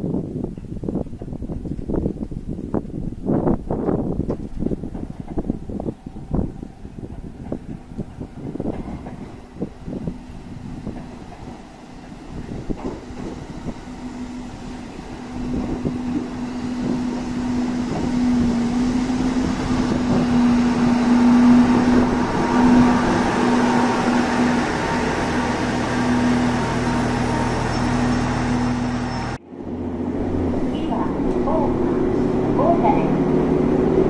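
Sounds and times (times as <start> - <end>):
wheels rumbling on rail: 0.0 - 34.0
diesel train engine: 4.6 - 34.0
deep hum: 25.4 - 29.4
faint high whine: 25.5 - 29.4.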